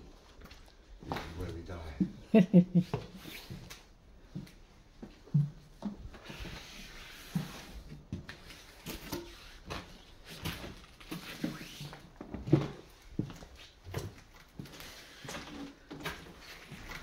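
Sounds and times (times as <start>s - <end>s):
footsteps on hard floor: 12.2s - 15.4s.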